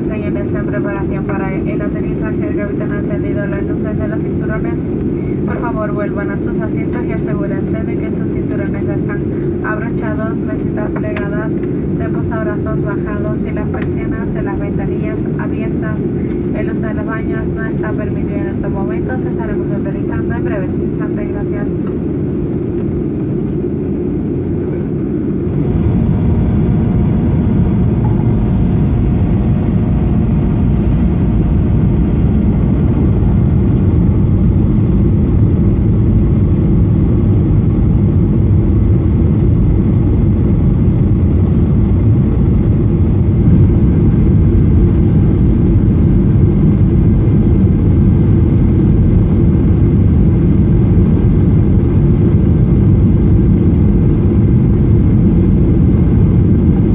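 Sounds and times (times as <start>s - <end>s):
jet engines and airflow rumble: 0.0s - 56.9s
faint steady whine: 25.5s - 34.2s.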